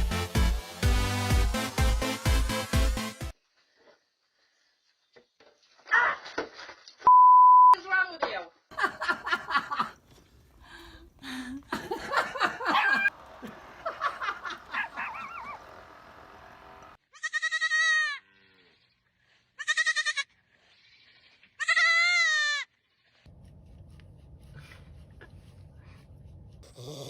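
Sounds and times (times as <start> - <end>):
mixed animal calls: 14.4 - 15.9
animal bleating: 17.0 - 18.9, 19.6 - 23.3.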